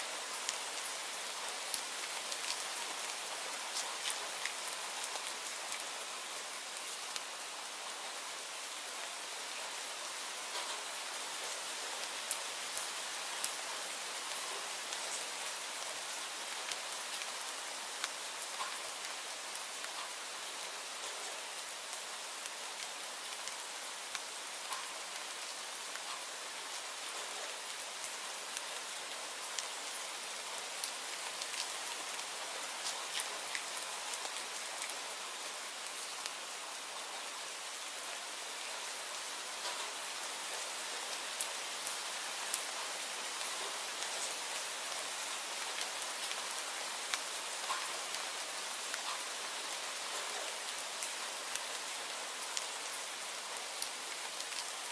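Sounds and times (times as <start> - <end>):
steady rain hissing: 0.0 - 54.9
sharp raindrop ticks: 47.1 - 48.0.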